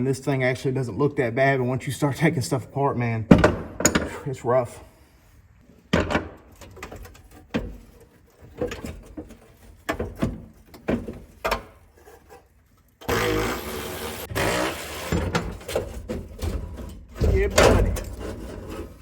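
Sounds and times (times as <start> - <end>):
knocks and clunks of truck parts: 3.3 - 4.2, 5.9 - 11.9, 15.2 - 18.9.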